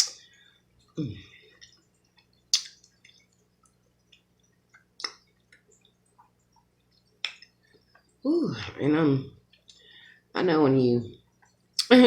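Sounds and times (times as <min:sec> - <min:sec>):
lip smacks and sucking clicks: 0:00.0 - 0:00.2, 0:01.6 - 0:08.1
faint steady hum: 0:00.0 - 0:12.0.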